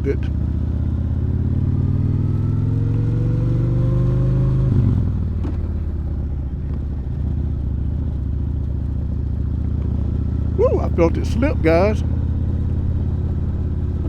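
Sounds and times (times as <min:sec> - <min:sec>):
motorcycle engine revving: 0:00.4 - 0:05.9.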